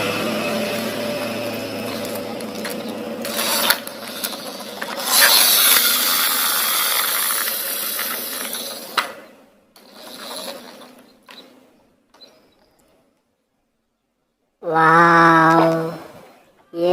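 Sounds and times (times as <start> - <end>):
plastic toy vehicle rattling: 1.8 - 13.1
ratchet-like clicking: 2.0 - 9.2.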